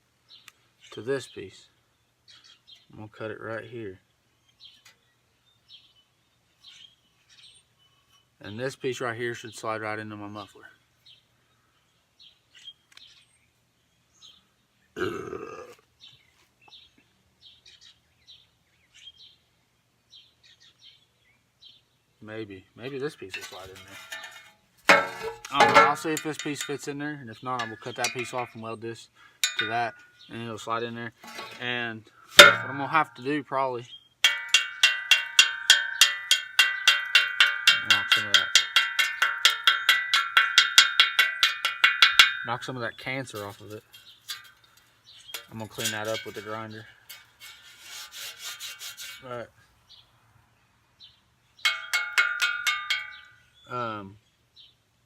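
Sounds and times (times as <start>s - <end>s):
small birds chirping: 0.2s - 48.0s, 48.6s - 55.0s
person burping: 15.0s - 15.8s
hammer beating on metal pipe: 24.9s - 26.9s, 27.6s - 28.5s, 29.4s - 29.9s, 32.4s - 33.2s, 34.2s - 42.7s, 51.7s - 53.3s.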